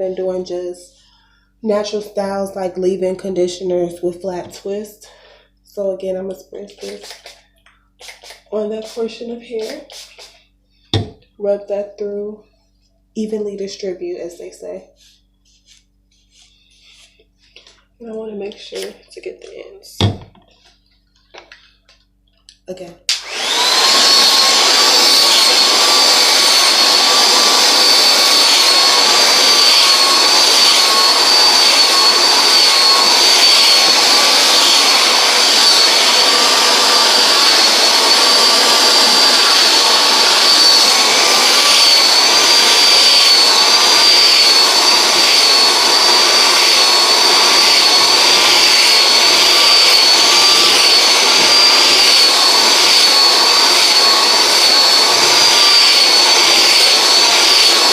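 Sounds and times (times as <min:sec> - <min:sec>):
hair dryer running: 0:05.8 - 0:07.4, 0:08.0 - 0:11.2, 0:15.0 - 0:20.3, 0:22.5 - 0:57.9.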